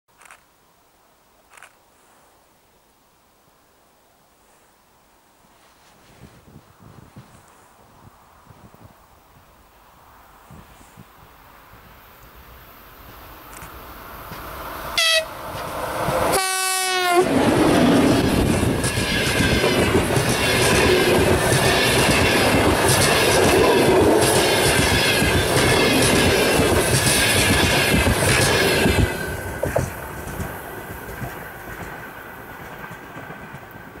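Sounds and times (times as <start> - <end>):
train rushing past: 11.4 - 34.0
locomotive horn blasts: 15.0 - 15.4, 16.3 - 17.3
wheels clacking over rail joints: 17.3 - 34.0.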